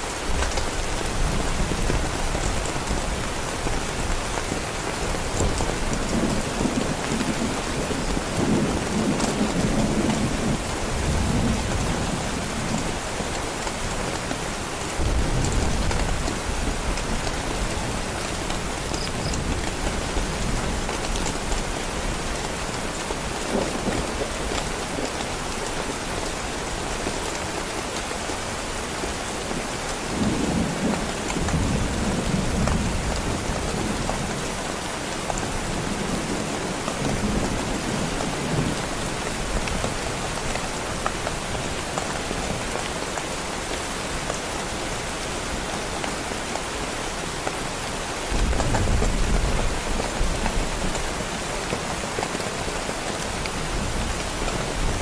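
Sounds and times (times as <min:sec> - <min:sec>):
heavy rain on a tent: 0:00.0 - 0:55.0.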